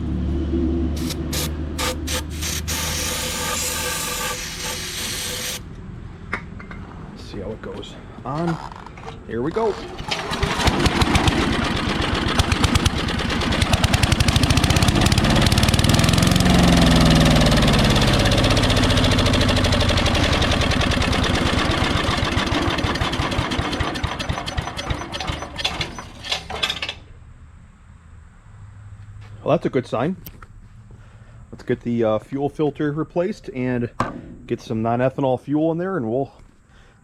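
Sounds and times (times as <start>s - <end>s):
small engine running and sputtering: 10.0s - 26.1s.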